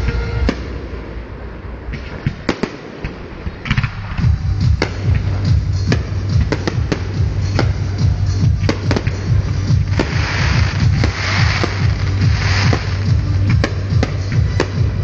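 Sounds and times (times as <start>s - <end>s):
music with strong bass: 0.0s - 1.8s, 3.7s - 15.0s
fireworks bangs and cracks: 2.0s - 15.0s
fireworks hissing crackle: 8.8s - 13.6s.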